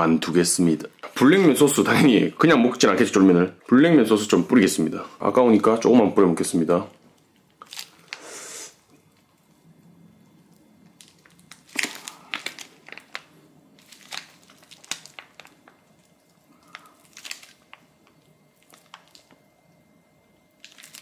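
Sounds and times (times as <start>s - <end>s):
plastic packaging crinkling: 4.2s - 8.3s, 8.9s - 21.0s.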